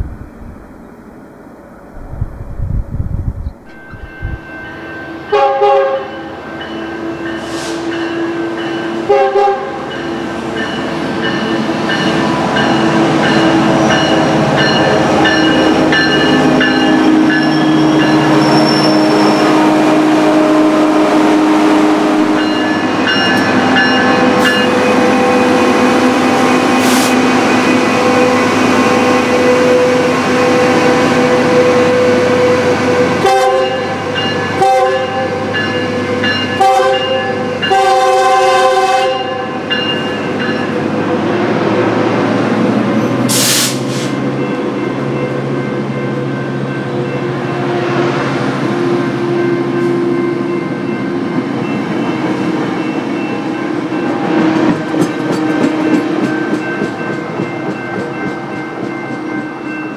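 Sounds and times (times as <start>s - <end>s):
diesel locomotive running: 0.0s - 59.9s
train horn blasts: 5.2s - 6.3s, 7.4s - 10.2s, 17.7s - 22.8s, 23.4s - 39.7s.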